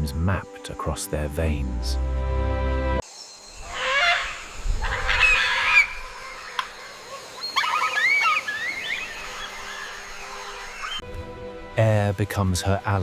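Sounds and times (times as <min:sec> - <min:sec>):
birds honking calls: 0:03.6 - 0:11.0.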